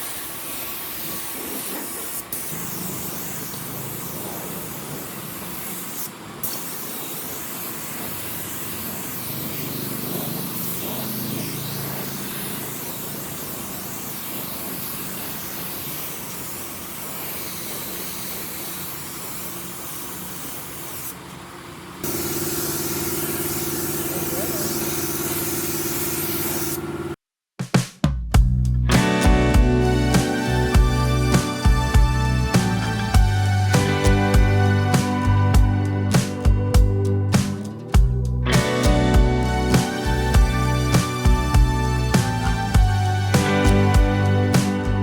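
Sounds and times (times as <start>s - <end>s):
rushing air hiss: 0.0s - 21.2s, 28.9s - 35.4s, 38.6s - 45.0s
steady low hum: 28.9s - 45.0s.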